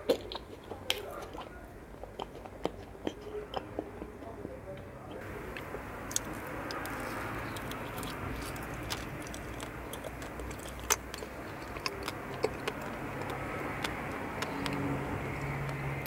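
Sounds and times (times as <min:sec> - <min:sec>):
wet chewing mouth noise: 0:00.0 - 0:16.0
sharp mouth clicks: 0:05.5 - 0:15.9.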